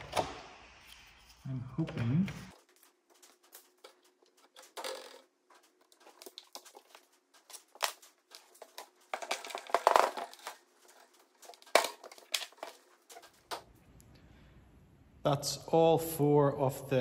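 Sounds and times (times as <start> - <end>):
crinkling and rustling: 0.8 - 13.8.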